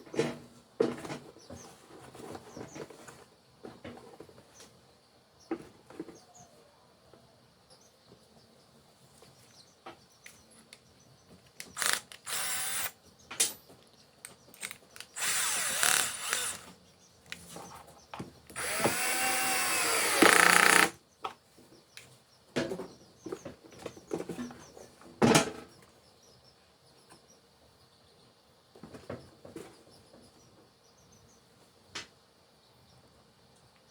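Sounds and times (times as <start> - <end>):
power drill whirring: 11.6 - 13.0, 14.6 - 16.8, 18.5 - 21.0.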